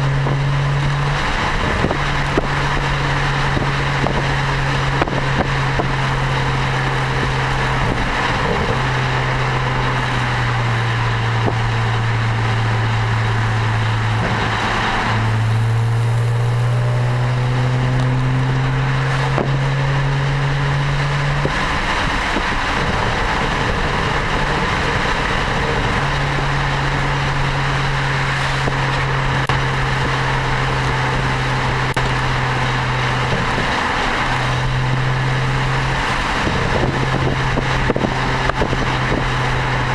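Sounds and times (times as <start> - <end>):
car exhaust drone: 0.0 - 39.9
road and wind noise: 0.0 - 39.9.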